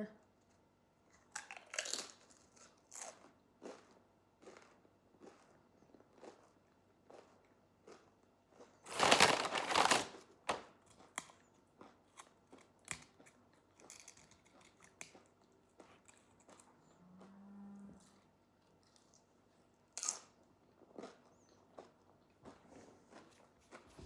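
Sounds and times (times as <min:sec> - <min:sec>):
crinkling rustle of handling: 0:08.9 - 0:10.7.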